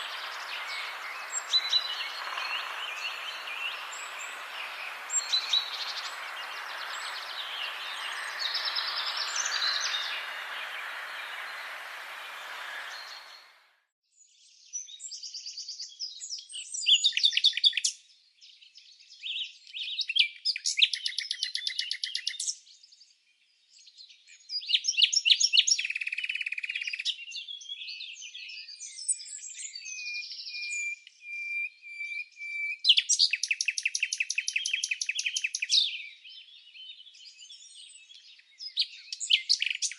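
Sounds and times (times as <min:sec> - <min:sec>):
background hiss: 0:00.0 - 0:13.6
songbirds singing: 0:00.0 - 0:13.6.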